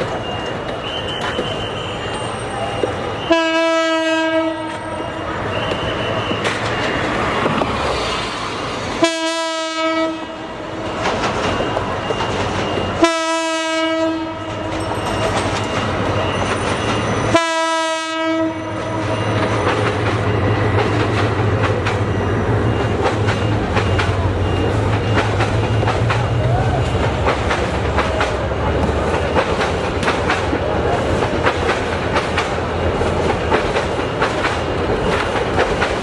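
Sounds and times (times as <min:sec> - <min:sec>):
train wheels rumbling on rails: 0:00.0 - 0:36.0
train horn blasts: 0:01.7 - 0:05.0, 0:09.0 - 0:10.4, 0:13.0 - 0:14.7, 0:17.3 - 0:19.2.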